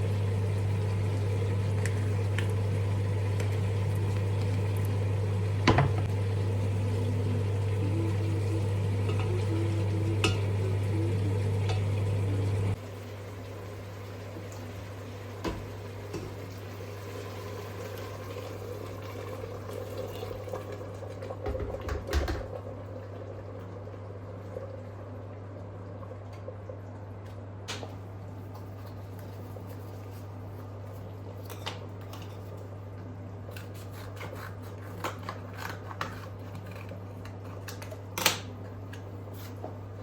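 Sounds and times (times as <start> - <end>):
low kitchen hum: 0.0 - 40.0
pots and utensils clinking: 8.8 - 10.8, 11.5 - 12.2.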